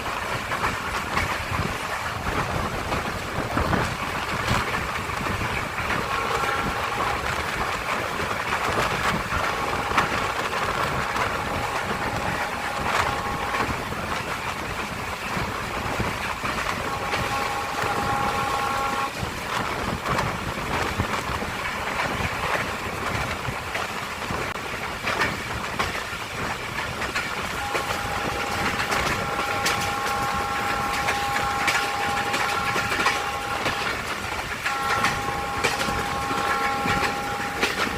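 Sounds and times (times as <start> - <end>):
train wheels clattering on rails: 0.0 - 37.9
train horn chord: 5.8 - 20.0, 27.6 - 37.9.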